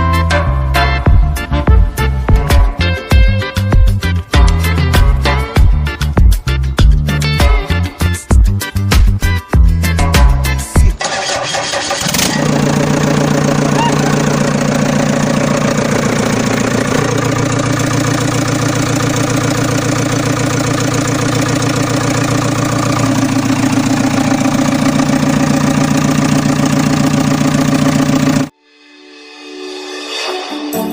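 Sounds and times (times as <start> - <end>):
vehicle engine starting and idling: 11.0 - 28.5.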